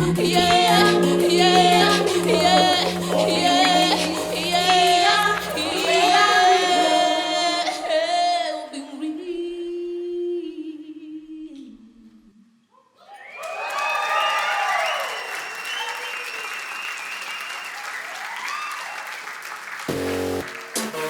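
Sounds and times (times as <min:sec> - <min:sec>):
women singing in harmony: 0:00.0 - 0:12.1.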